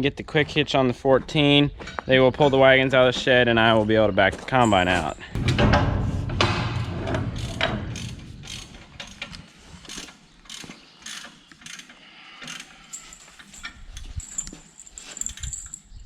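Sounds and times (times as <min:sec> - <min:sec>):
metallic clicks and knocks: 0:04.6 - 0:15.8
low rumble: 0:05.4 - 0:09.4.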